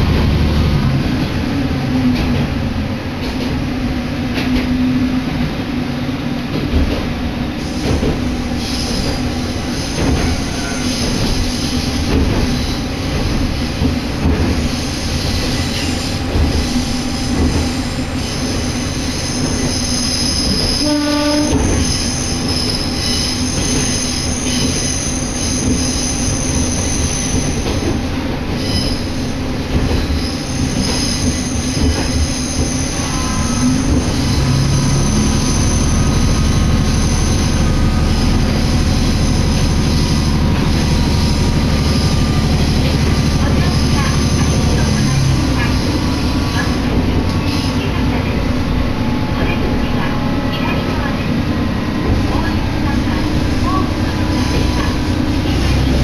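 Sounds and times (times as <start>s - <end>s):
high wheel squeal: 7.6s - 12.9s, 14.7s - 27.6s, 28.6s - 29.2s, 30.2s - 46.8s
train horn blast: 20.8s - 21.8s.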